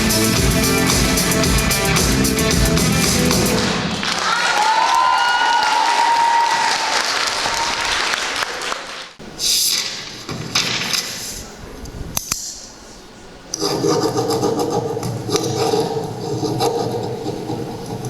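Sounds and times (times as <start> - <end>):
steady tones: 0.0 - 4.0
audience applause: 2.6 - 9.2.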